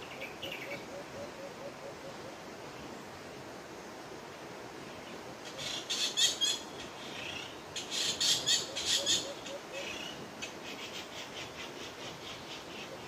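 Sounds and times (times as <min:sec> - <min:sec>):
small bird chattering calls: 0:05.5 - 0:13.0.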